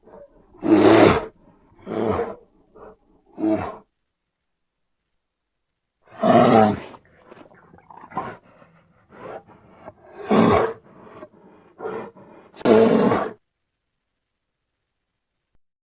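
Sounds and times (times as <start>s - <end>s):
bear grunting: 0.0s - 3.9s, 6.1s - 13.4s
bear roaring: 0.0s - 3.9s, 6.1s - 13.4s.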